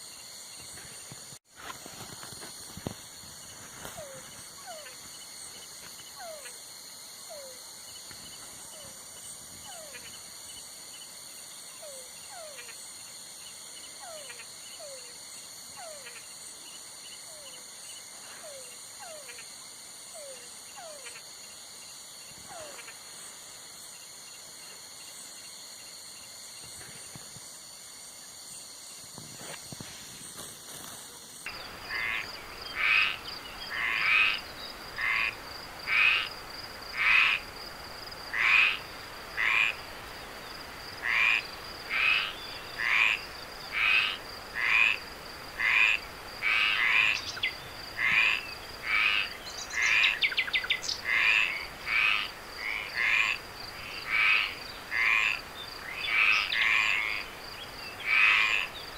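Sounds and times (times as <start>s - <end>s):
frog croaking: 31.5s - 37.6s, 38.2s - 40.0s, 41.0s - 58.9s.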